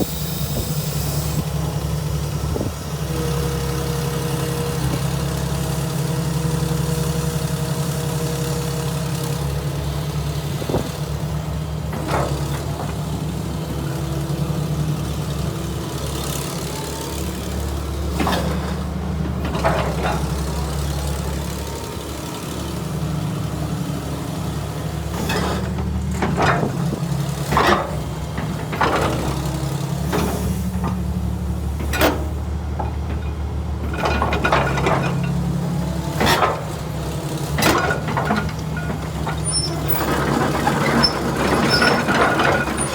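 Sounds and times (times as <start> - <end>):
excavator diesel engine running: 0.0 - 42.9
metal clanks: 31.8 - 36.8.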